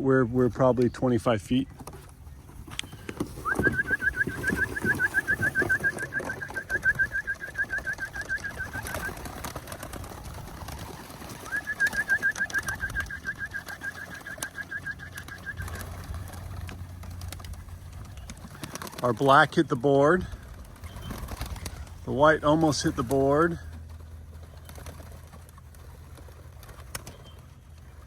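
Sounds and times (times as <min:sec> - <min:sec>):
bird trilling: 0:02.8 - 0:09.3, 0:10.8 - 0:16.0.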